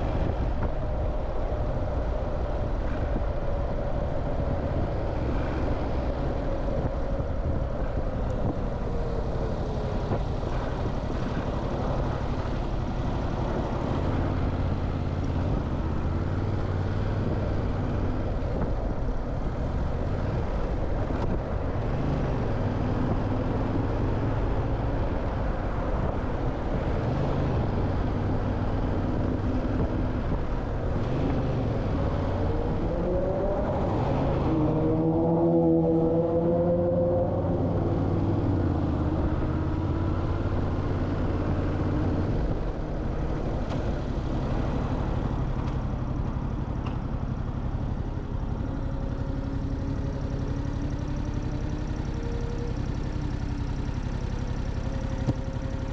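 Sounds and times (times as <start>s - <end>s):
road and wind rumble: 0.0s - 55.9s
motorcycle engine running: 36.1s - 55.9s.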